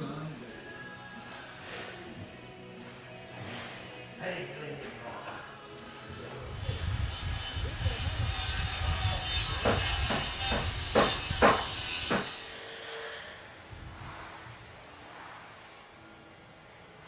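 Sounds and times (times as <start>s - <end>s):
sharp knocks: 9.6s - 12.3s
rumble: 13.6s - 17.0s.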